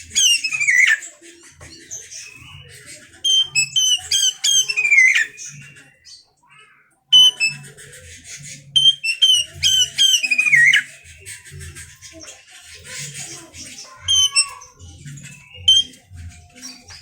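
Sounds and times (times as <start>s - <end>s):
bird chattering: 0.0s - 1.1s, 2.2s - 6.0s, 7.1s - 12.2s, 12.8s - 17.0s
bird singing whistled phrases: 0.1s - 1.0s, 3.2s - 5.7s, 7.1s - 7.6s, 8.8s - 10.9s, 14.0s - 14.6s, 15.4s - 16.0s.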